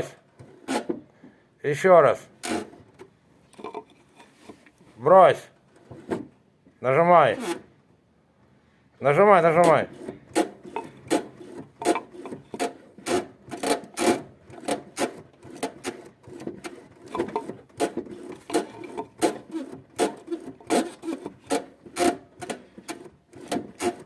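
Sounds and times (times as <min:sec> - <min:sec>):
gearbox creaking: 0:09.4 - 0:24.0.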